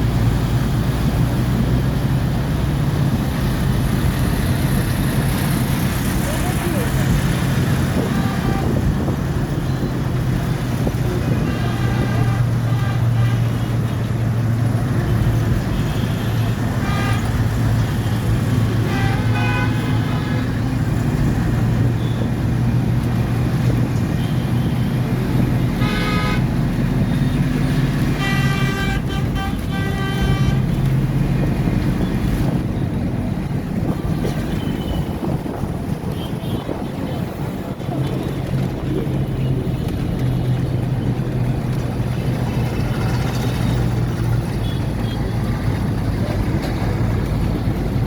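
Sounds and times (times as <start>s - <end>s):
traffic engine hum: 0.0s - 48.0s
car horns honking: 8.0s - 9.1s, 11.2s - 14.0s, 14.9s - 20.6s, 25.7s - 26.6s, 28.1s - 30.8s.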